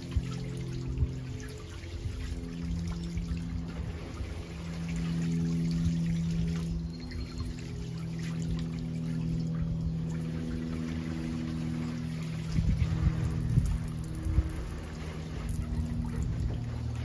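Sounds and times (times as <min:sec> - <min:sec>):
fountain water splashing: 0:00.0 - 0:06.8
pump humming: 0:00.0 - 0:17.0.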